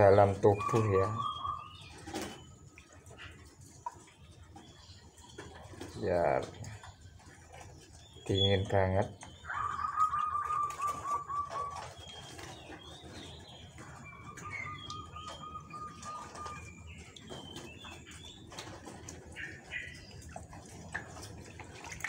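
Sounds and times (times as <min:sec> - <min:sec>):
high wavering bird trill: 0:09.4 - 0:11.9, 0:13.9 - 0:17.7
water splashing: 0:14.0 - 0:22.0.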